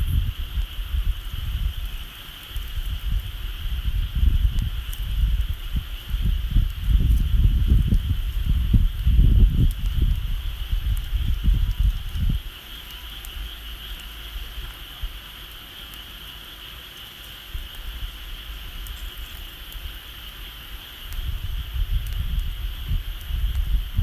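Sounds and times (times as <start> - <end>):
wind buffeting microphone: 0.0 - 15.2, 21.0 - 24.0
bonfire crackling: 0.0 - 24.0.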